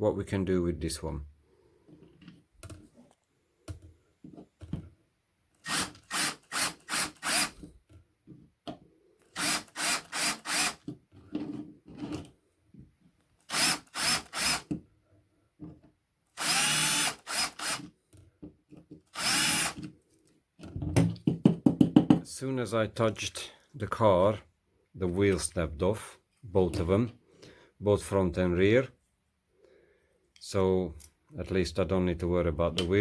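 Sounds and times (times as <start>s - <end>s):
power drill bursts: 5.6s - 7.6s, 9.3s - 10.8s, 13.5s - 14.7s, 16.4s - 17.9s, 19.1s - 19.8s.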